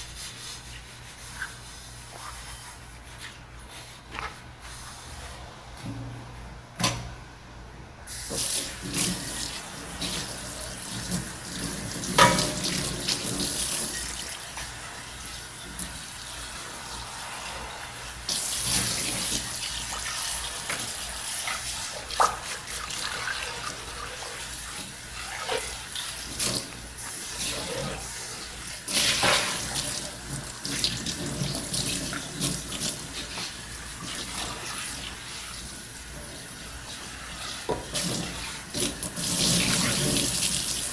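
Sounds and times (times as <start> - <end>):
tap water running into sink: 8.3 - 28.1, 28.8 - 40.9.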